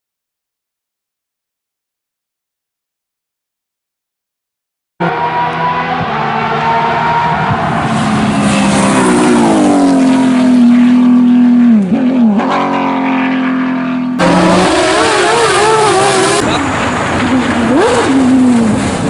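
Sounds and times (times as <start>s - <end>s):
different engine sound: 5.0s - 19.0s
sports car engine revving: 5.0s - 19.0s.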